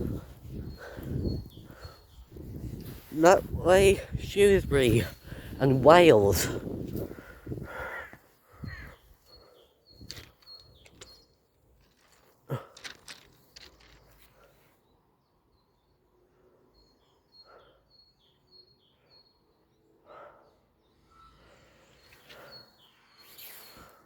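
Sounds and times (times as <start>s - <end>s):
small bird chirping: 0.0s - 3.1s, 8.6s - 11.4s, 20.9s - 24.0s.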